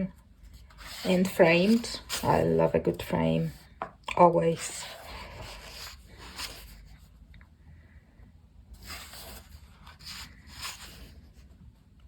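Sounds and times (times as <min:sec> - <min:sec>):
paper pages turning: 0:05.1 - 0:07.1, 0:08.8 - 0:11.6.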